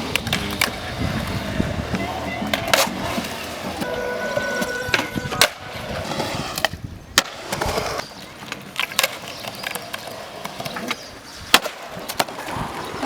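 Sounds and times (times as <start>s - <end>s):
skateboard clacking on ground: 0.0s - 13.0s
skateboard wheels rolling on concrete: 0.0s - 13.0s.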